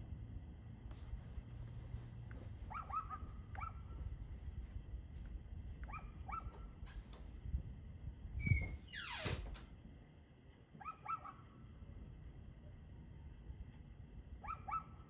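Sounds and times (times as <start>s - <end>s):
low steady rumble: 0.0s - 15.0s
dog barking faintly: 2.6s - 4.2s, 5.8s - 6.8s, 14.4s - 15.0s.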